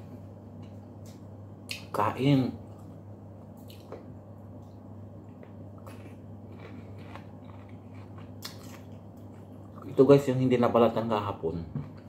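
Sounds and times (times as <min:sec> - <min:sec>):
steady low hum: 0:00.0 - 0:12.0
person chewing: 0:03.6 - 0:10.0.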